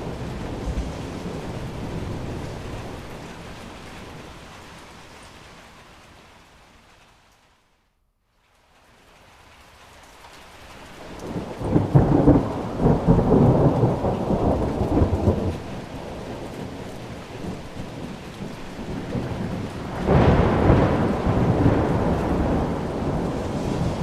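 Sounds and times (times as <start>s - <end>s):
thunder rumbling: 0.0s - 5.1s, 11.0s - 24.0s
steady rain: 0.0s - 24.0s.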